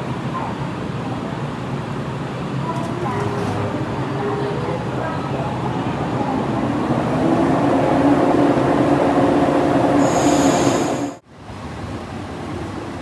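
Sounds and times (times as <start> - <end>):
electric train passing: 0.0 - 11.2
quieter electric train moving: 0.0 - 11.2
high-pitched squeal: 7.6 - 11.2.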